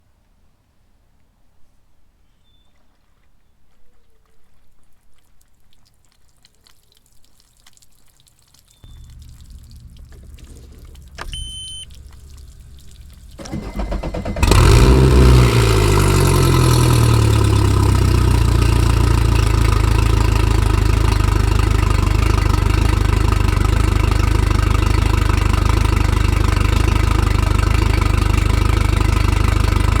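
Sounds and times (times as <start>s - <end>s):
low hum: 8.8s - 29.4s
boat engine cranking and idling: 8.8s - 30.0s
short beep: 11.2s - 12.4s.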